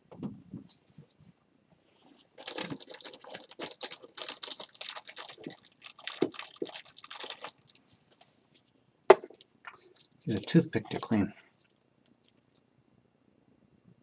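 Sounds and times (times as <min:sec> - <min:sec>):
hands rustling and scratching materials: 0:01.9 - 0:12.7.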